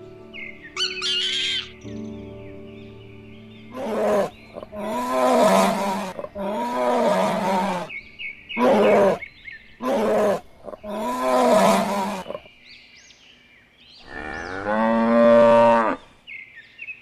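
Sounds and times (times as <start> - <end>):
large animal roaring: 3.8 - 7.9, 8.6 - 9.2, 9.8 - 12.5.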